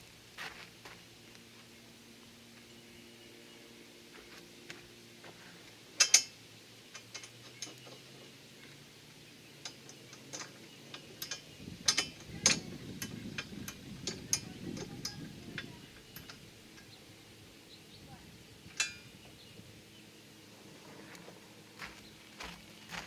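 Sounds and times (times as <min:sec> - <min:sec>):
metallic clicks of nuts threaded: 0:06.0 - 0:08.0, 0:09.6 - 0:17.0, 0:18.7 - 0:19.1.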